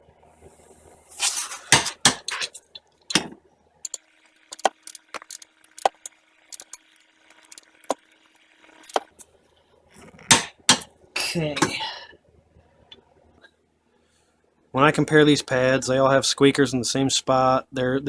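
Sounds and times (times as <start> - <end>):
metal tools clinking and knocking: 3.9 - 8.0, 8.8 - 9.1.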